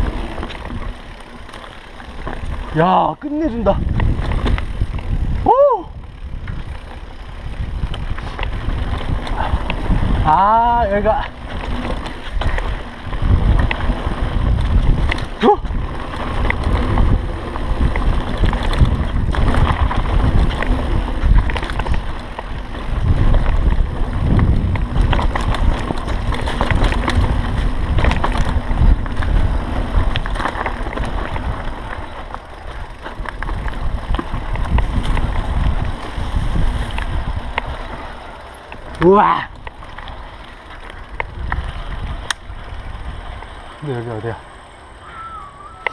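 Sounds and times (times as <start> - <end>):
wind buffeting microphone: 0.0 - 44.3
mountain bike rattling: 0.0 - 45.9.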